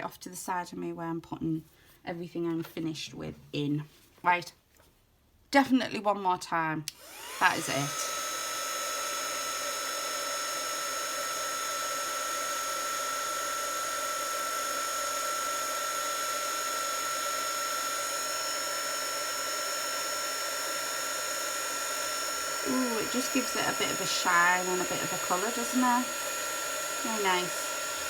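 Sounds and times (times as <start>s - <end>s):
heat gun fan whining: 6.9s - 28.0s.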